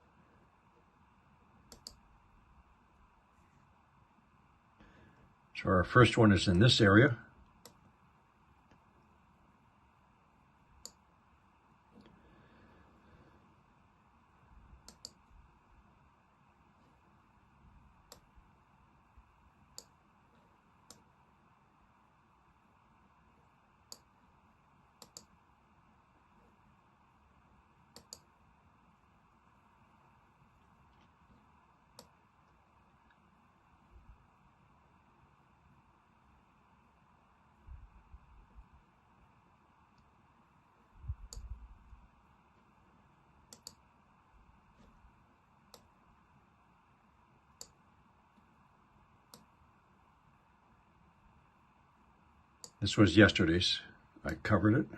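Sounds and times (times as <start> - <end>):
computer mouse clicking: 1.7 - 2.0, 10.8 - 11.0, 14.8 - 15.3, 18.0 - 18.3, 19.7 - 20.0, 23.9 - 24.2, 25.0 - 25.4, 27.9 - 28.3, 30.9 - 33.2, 41.2 - 41.5, 43.5 - 43.8, 47.6 - 48.5, 49.3 - 49.5.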